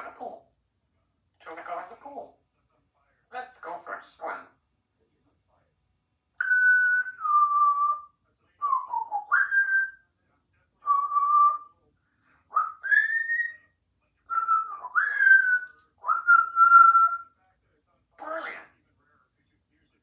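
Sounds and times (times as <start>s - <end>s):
parrot whistling: 6.4s - 10.0s, 10.8s - 11.7s, 12.5s - 13.7s, 14.3s - 17.3s.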